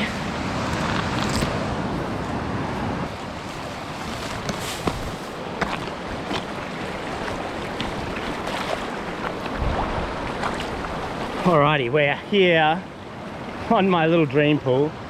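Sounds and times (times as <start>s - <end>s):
mountain stream rushing: 0.0s - 15.0s
sharp clicks and rustles: 0.6s - 1.6s.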